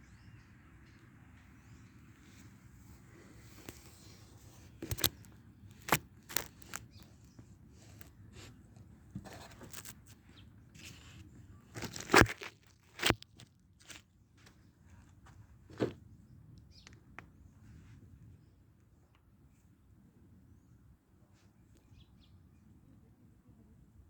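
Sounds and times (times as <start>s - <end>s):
sharp crunches and clicks: 3.4s - 8.5s, 9.3s - 10.2s, 10.8s - 14.0s.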